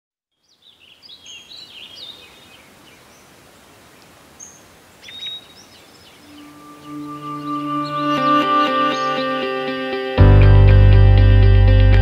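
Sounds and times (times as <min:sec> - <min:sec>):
faint outdoor hiss: 0:00.3 - 0:10.2
songbirds chirping and whistling: 0:00.4 - 0:09.6.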